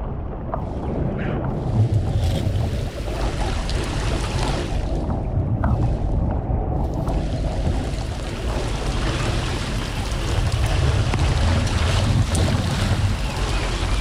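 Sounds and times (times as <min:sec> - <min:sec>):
water rushing through culvert: 0:01.5 - 0:05.5, 0:06.8 - 0:14.0.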